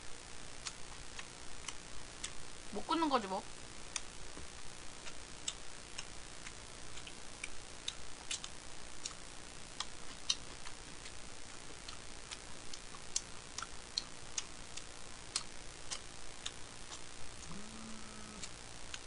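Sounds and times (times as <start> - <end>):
wet chewing mouth clicks: 0.6 - 2.4, 5.0 - 9.2, 9.8 - 19.0
person humming: 17.4 - 18.6.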